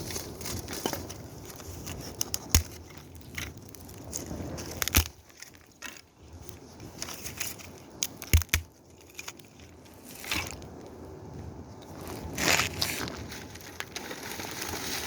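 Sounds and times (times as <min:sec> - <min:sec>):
firewood cracking and snapping: 0:00.0 - 0:11.0, 0:11.9 - 0:15.0
rustling: 0:11.8 - 0:15.0.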